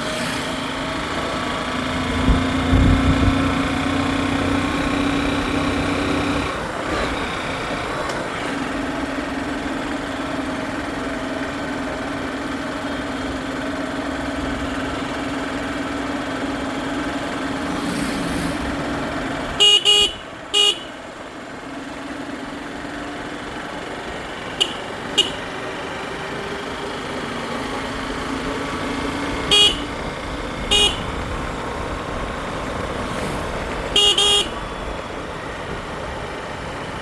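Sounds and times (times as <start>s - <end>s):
vehicle engine running: 0.0s - 37.0s
car horn honks: 19.6s - 21.0s, 24.5s - 25.6s, 29.5s - 30.1s, 30.7s - 31.3s, 33.9s - 34.7s.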